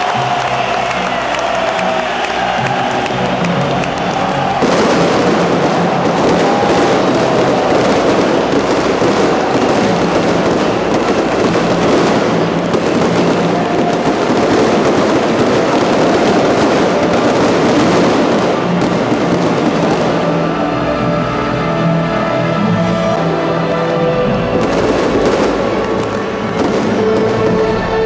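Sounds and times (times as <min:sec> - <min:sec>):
fireworks crackling and popping: 0:00.0 - 0:21.4, 0:24.2 - 0:28.0.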